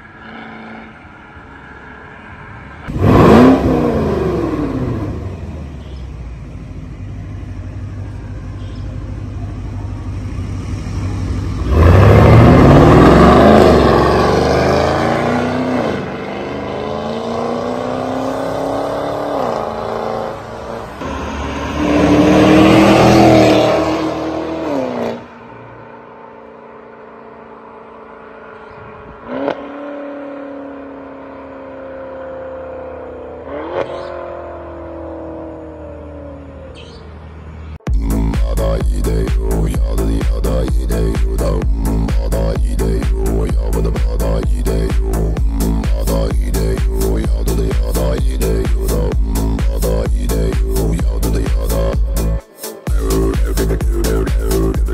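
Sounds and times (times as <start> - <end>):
car engine accelerating hard: 2.8 - 54.9
engine revving bursts: 2.9 - 5.8, 10.9 - 25.3, 33.4 - 36.4, 37.9 - 54.9.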